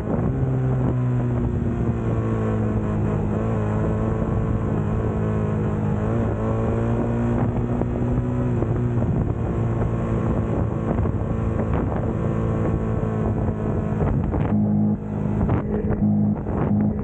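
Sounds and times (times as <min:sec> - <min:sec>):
motorcycle engine running: 0:00.0 - 0:17.0
wind buffeting microphone: 0:07.3 - 0:17.0.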